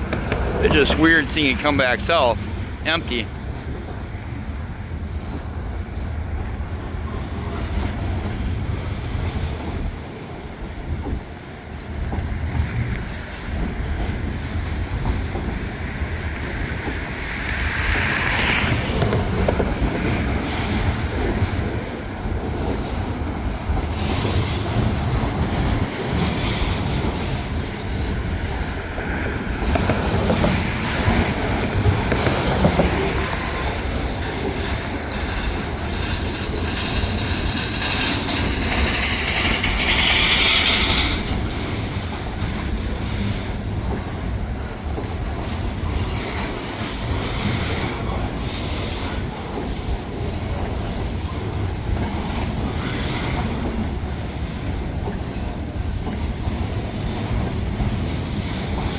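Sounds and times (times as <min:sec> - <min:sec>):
clicking over rail joints: 0:00.0 - 0:01.0, 0:22.4 - 0:53.9
train wheels rumbling on rails: 0:00.0 - 0:58.9
high wheel squeal: 0:37.0 - 0:41.4.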